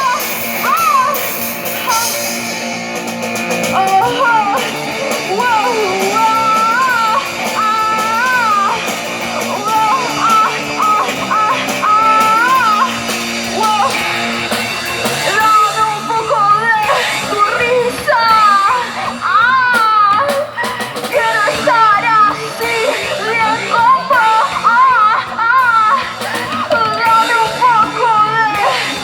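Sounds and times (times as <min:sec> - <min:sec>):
person singing: 0:00.0 - 0:02.8, 0:03.4 - 0:29.0
punk rock band playing: 0:00.0 - 0:29.0.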